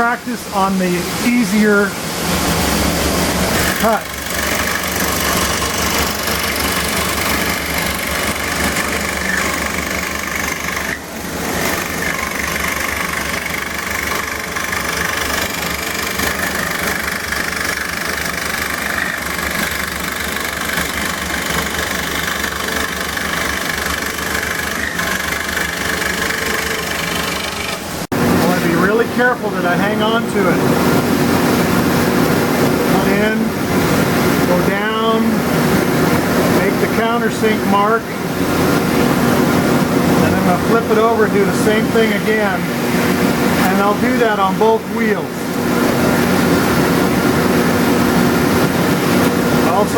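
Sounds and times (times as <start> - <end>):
bandsaw cutting wood: 3.3 - 28.1.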